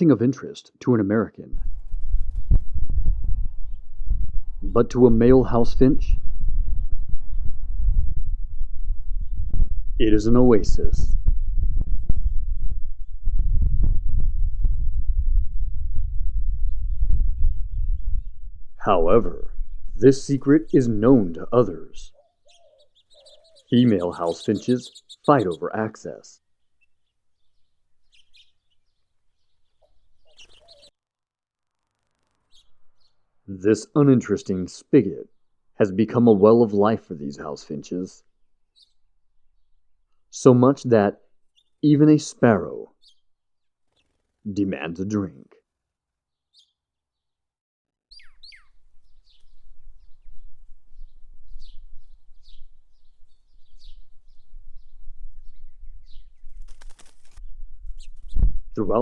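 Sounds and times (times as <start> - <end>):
small songbirds chirping: 1.6 - 13.8, 15.6 - 18.7, 19.3 - 30.9, 32.0 - 40.4, 41.3 - 42.2, 42.9 - 44.6, 46.3 - 47.4, 48.1 - 59.0
steady low rumble: 1.6 - 22.1
house finches chirping: 20.0 - 30.9
fast bird trill: 22.0 - 30.9, 32.5 - 33.2, 48.1 - 50.2
falling bird call: 22.1 - 30.9.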